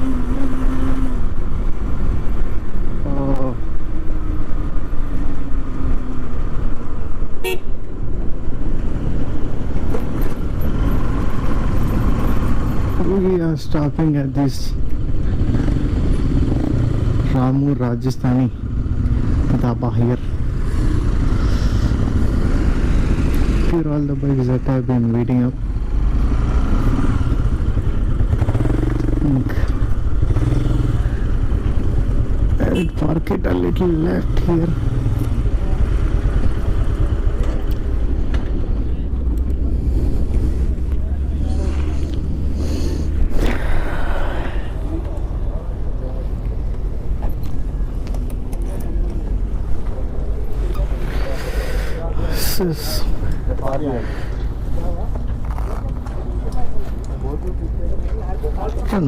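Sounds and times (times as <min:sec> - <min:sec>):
motorcycle engine rumble: 0:00.0 - 0:59.0
vehicle horn toot: 0:07.4 - 0:07.8, 0:32.6 - 0:33.0.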